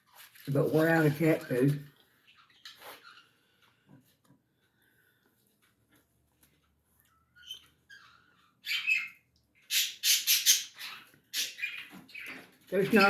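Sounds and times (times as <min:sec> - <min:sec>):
bird squawking: 0:07.4 - 0:12.4.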